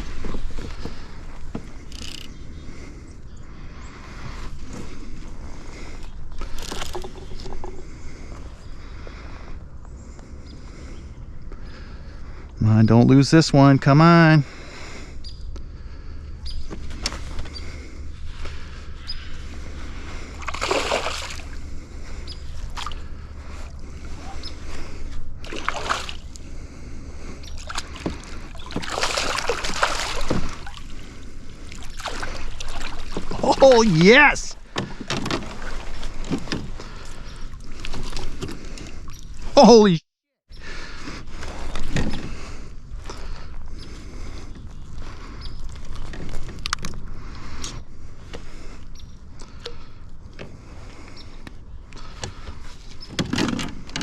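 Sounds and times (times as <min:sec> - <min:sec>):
handling clicks and knocks: 0:01.5 - 0:02.3
water splashing beside kayak: 0:20.3 - 0:21.7, 0:25.4 - 0:26.4, 0:27.4 - 0:34.3
steady low rumble: 0:21.3 - 0:28.7.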